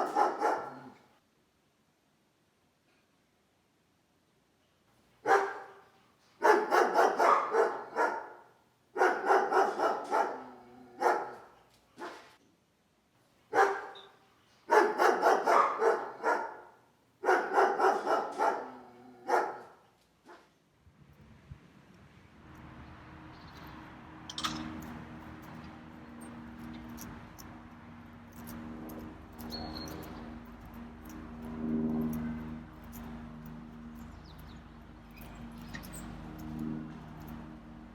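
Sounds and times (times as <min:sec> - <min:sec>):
animal barking: 0:00.0 - 0:01.0, 0:05.2 - 0:05.8, 0:06.4 - 0:08.4, 0:09.0 - 0:12.3, 0:13.5 - 0:14.1, 0:14.7 - 0:20.5.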